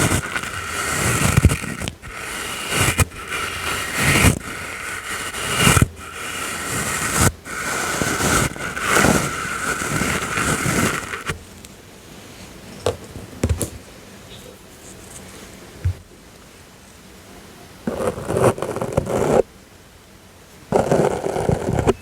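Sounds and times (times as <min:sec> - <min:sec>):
brush stroked across microphone: 0:00.0 - 0:11.4.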